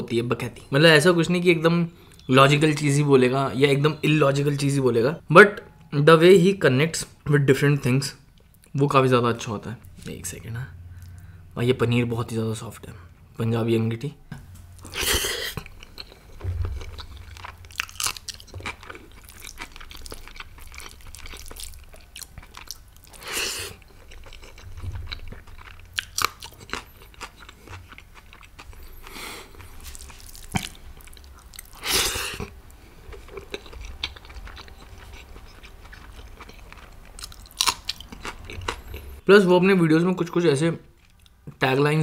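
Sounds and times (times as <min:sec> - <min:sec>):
person chewing food: 0:14.7 - 0:39.2.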